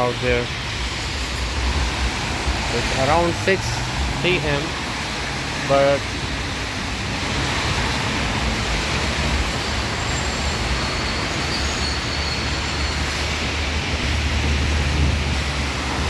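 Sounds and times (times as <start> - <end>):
rain falling: 0.0 - 16.0
street traffic rumble: 0.0 - 16.0.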